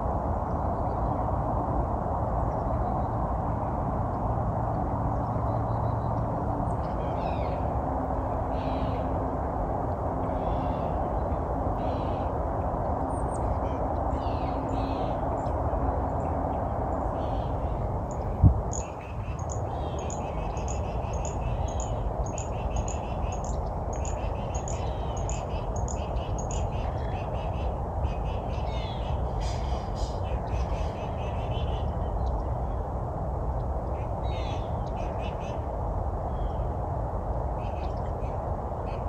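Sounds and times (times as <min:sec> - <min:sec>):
low background rush: 0:00.0 - 0:39.0
small birds calling: 0:05.2 - 0:07.7, 0:13.2 - 0:15.6, 0:16.2 - 0:32.9.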